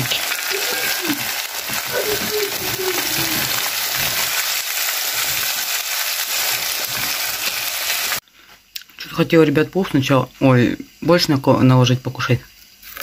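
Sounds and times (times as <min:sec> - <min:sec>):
food sizzling in a frying pan: 0:00.0 - 0:08.2, 0:09.2 - 0:13.0
wooden spatula stirring: 0:00.1 - 0:08.2.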